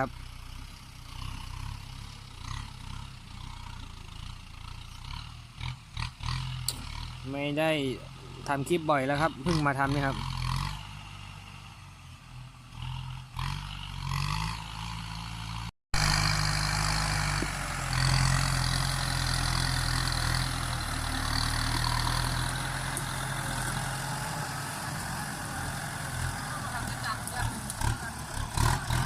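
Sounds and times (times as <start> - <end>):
tractor diesel engine humming: 0.0 - 12.8, 14.7 - 29.0.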